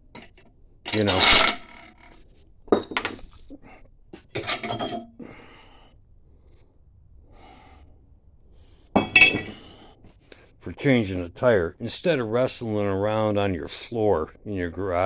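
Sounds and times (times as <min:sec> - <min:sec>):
metal clanks with ringing: 0:00.9 - 0:01.8
metal clinking and scraping: 0:00.9 - 0:02.2, 0:02.8 - 0:03.4, 0:04.4 - 0:05.0, 0:09.0 - 0:09.7.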